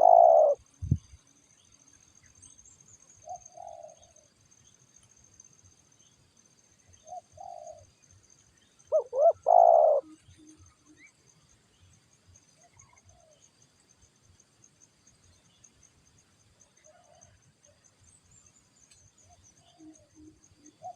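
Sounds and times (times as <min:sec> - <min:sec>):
dove cooing: 0:00.0 - 0:00.6, 0:03.3 - 0:04.2, 0:07.0 - 0:07.9, 0:08.9 - 0:10.2.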